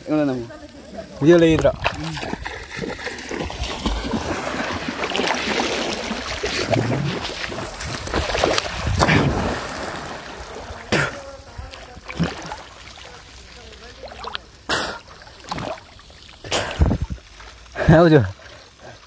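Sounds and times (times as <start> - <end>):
water rushing and splashing: 0.0 - 19.0
wind buffeting microphone: 1.4 - 5.0, 6.3 - 10.2, 16.7 - 17.2.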